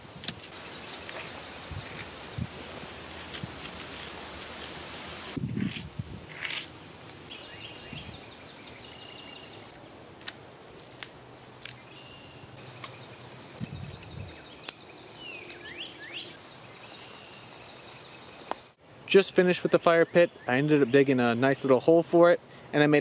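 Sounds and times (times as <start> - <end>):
outdoor background hiss: 0.0 - 23.0
bird calls and chirps: 7.3 - 9.8, 11.8 - 18.7.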